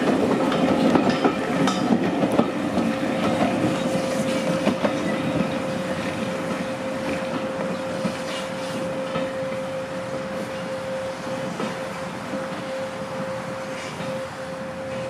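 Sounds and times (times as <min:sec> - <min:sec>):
wheels clicking over rail joints: 0:00.0 - 0:09.7
railway carriages rumbling: 0:00.0 - 0:15.0.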